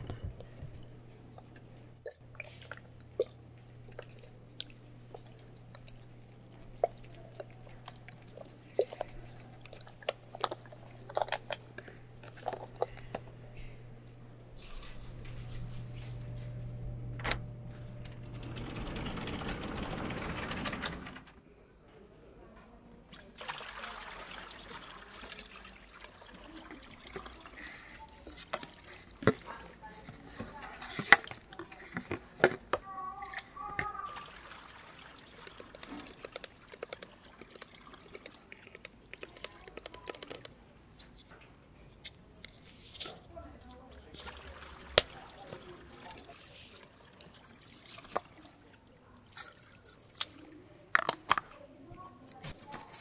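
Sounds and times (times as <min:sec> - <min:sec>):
low steady hum: 0:00.0 - 0:21.2
hair being lathered: 0:23.3 - 0:32.3, 0:33.2 - 0:39.4, 0:43.7 - 0:46.9.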